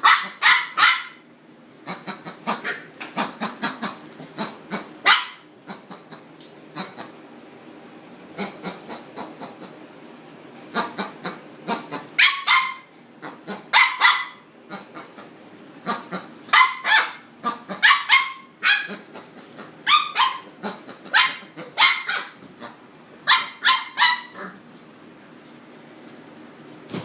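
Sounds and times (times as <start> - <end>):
dog barking: 0.0 - 1.2, 2.5 - 2.9, 5.0 - 5.5, 11.7 - 14.5, 15.9 - 19.1, 19.8 - 22.4, 23.2 - 24.6.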